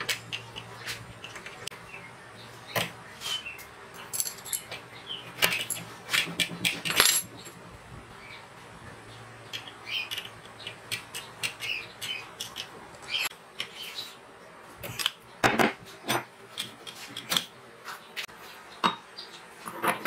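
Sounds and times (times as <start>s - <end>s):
steel parts clinking and clicking: 3.9s - 4.8s, 5.4s - 7.6s.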